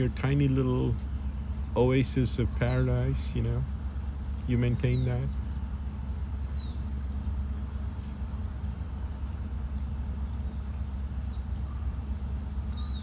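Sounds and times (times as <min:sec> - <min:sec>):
low background rumble: 0:00.0 - 0:13.0
bird chirping: 0:04.6 - 0:05.4, 0:06.4 - 0:06.9, 0:09.6 - 0:13.0.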